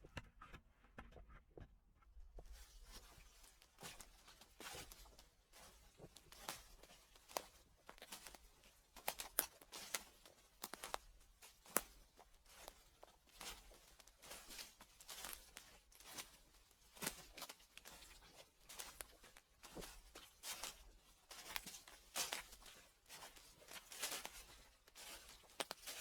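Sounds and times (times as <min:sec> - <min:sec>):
footsteps crunching dry leaves: 0:18.7 - 0:26.0.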